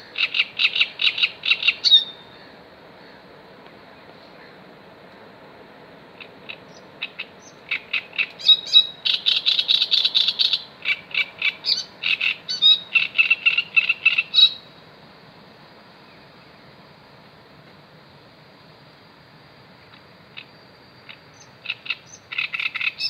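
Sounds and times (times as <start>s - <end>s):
bird calling repeated notes: 0.0s - 2.6s, 6.2s - 14.7s.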